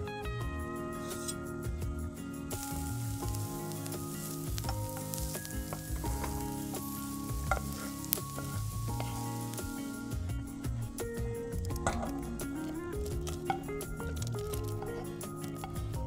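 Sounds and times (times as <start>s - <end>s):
soft background music: 0.0s - 16.0s
food sizzling in oil: 2.5s - 16.0s.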